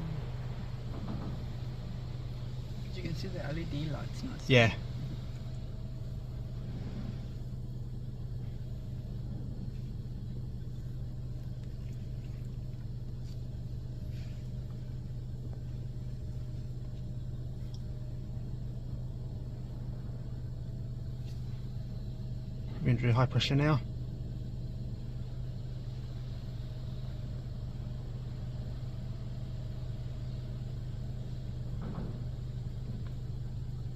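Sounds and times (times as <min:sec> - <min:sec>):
car wash hum and rumble: 0:00.0 - 0:33.9
faint ticks: 0:16.8 - 0:17.9.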